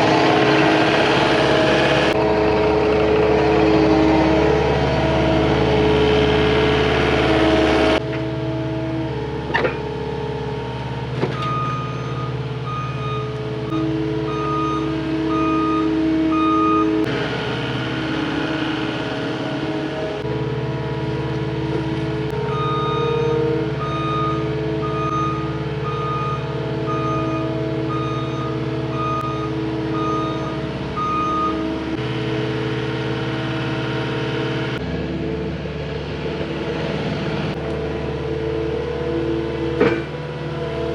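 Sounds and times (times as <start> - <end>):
diesel engine running: 0.0 - 40.9
reverse alarm beeping: 11.4 - 17.0, 22.4 - 31.7.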